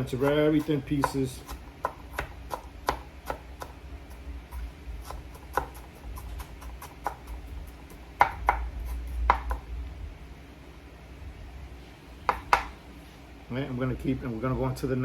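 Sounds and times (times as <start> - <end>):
knife chopping on cutting board: 0.0 - 9.7, 12.3 - 12.8.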